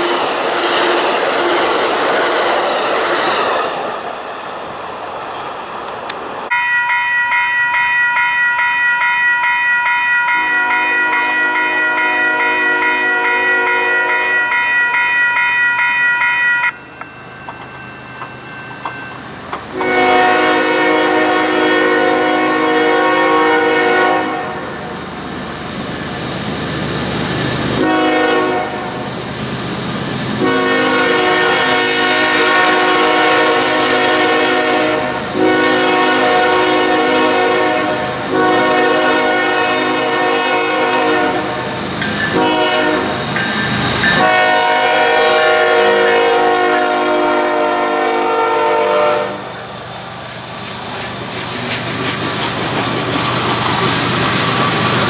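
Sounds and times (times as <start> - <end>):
moving train rumble: 0.0 - 55.0
locomotive air horn blasts: 10.3 - 14.7, 19.7 - 25.0, 27.8 - 29.0, 30.4 - 43.3, 44.2 - 49.6.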